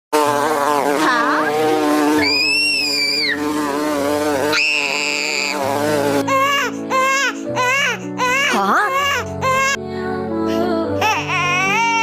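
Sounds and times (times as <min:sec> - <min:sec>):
bee buzzing: 0:00.1 - 0:07.4
high-pitched wailing cries: 0:02.2 - 0:03.5, 0:04.5 - 0:09.8, 0:11.0 - 0:12.0.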